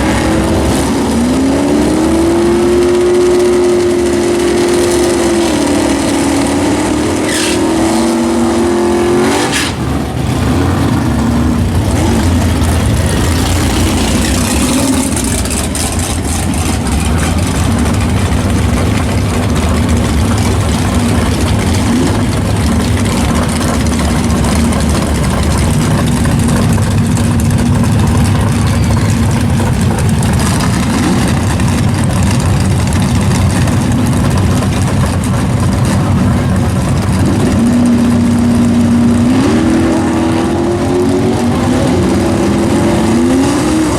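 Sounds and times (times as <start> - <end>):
loud car engine: 0.0 - 43.9.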